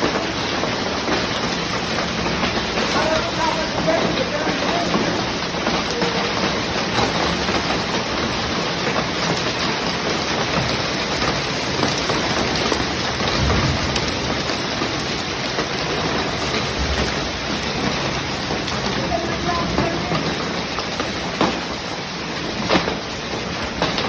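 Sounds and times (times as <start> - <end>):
hail clattering: 0.0 - 24.0
heavy rain: 0.0 - 24.0
low rumble: 13.2 - 15.2.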